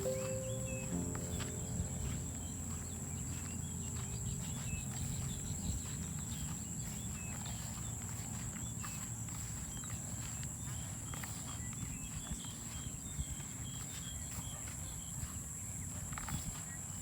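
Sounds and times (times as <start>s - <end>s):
bird chirps: 0.0s - 7.8s.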